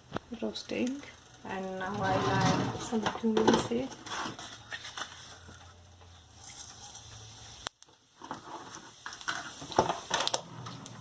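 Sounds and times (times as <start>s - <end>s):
seeds popping in hot oil: 0.0s - 1.9s, 6.0s - 11.0s.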